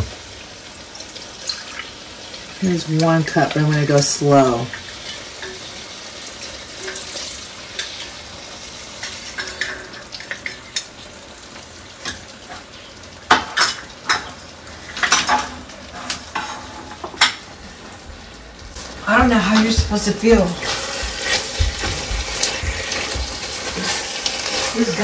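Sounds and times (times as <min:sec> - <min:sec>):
meat and vegetables sizzling in a pot: 0:00.0 - 0:25.0
utensils clinking against pot: 0:05.0 - 0:05.8, 0:06.7 - 0:08.2, 0:09.0 - 0:10.9, 0:14.9 - 0:17.4.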